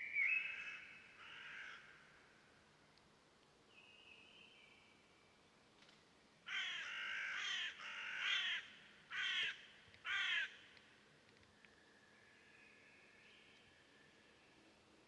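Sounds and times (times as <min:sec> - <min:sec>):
faint thin bird whistle: 0:00.0 - 0:00.6.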